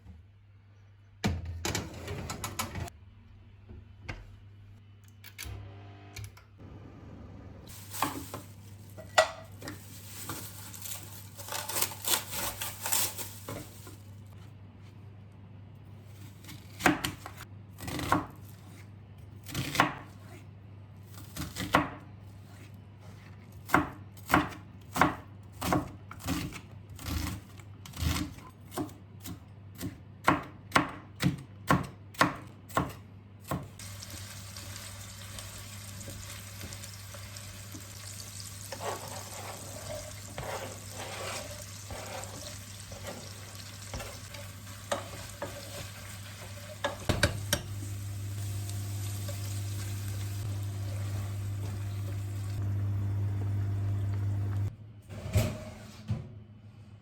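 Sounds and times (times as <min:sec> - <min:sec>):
food sizzling in frying pan: 0:33.8 - 0:52.7.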